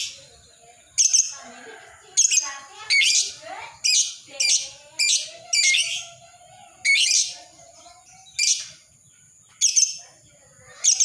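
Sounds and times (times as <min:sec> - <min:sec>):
lovebird chirping: 0:00.0 - 0:01.5, 0:02.2 - 0:06.1, 0:06.8 - 0:10.1.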